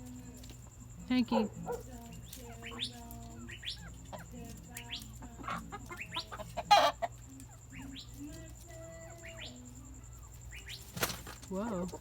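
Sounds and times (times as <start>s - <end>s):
chickens clucking: 0.0s - 12.0s
rising chirping calls: 2.2s - 11.1s.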